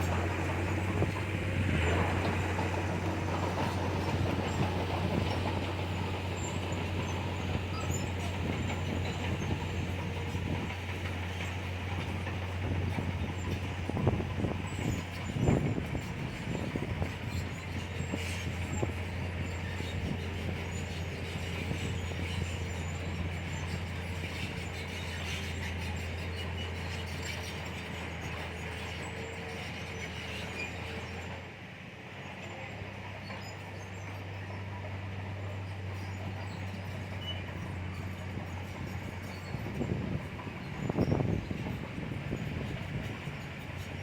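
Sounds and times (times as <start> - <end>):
metallic track clatter: 0.0 - 29.1
bulldozer diesel engine running: 0.0 - 44.0.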